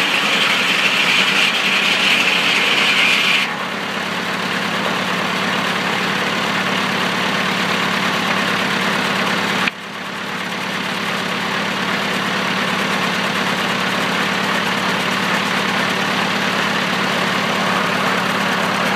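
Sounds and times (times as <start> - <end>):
sawmill engine running: 0.0 - 18.9.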